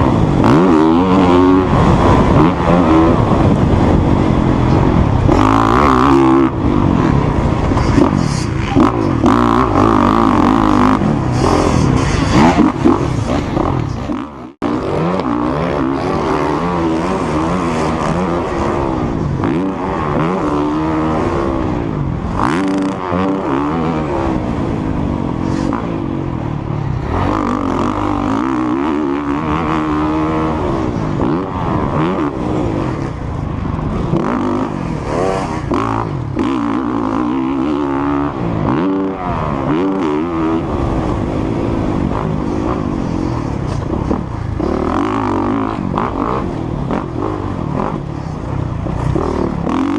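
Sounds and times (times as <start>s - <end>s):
motocross bike engine revving: 0.0s - 49.9s.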